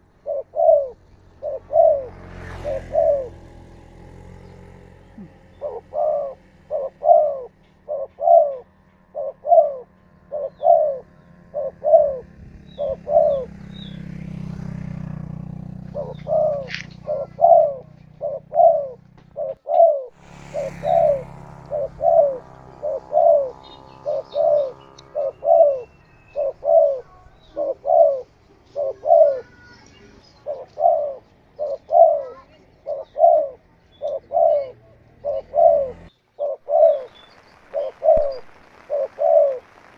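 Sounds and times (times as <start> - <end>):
doves cooing: 0.0 - 39.9
low hum: 36.7 - 39.9.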